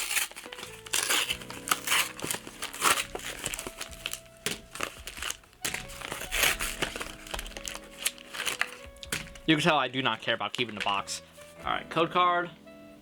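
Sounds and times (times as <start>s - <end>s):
cardboard box being torn open: 0.0s - 9.5s.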